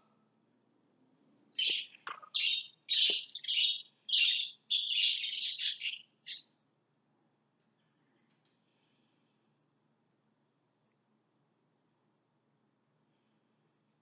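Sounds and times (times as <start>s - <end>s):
lovebirds chirping and squawking: 1.6s - 6.5s.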